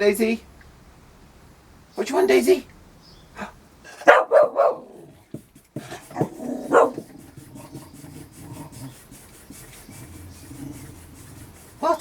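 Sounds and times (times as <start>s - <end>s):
dog vocalising: 3.9s - 11.8s.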